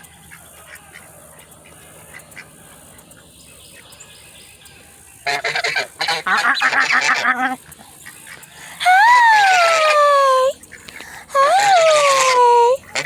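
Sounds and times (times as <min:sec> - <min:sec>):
geese honking: 0:05.2 - 0:13.0.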